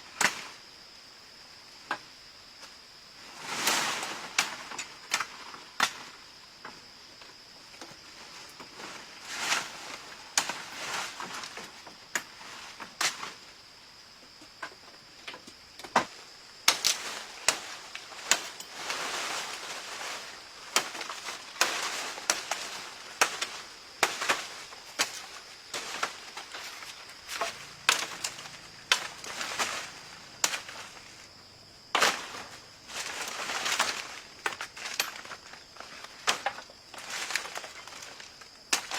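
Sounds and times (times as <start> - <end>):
branches cracking: 16.7 - 31.3, 31.9 - 38.9.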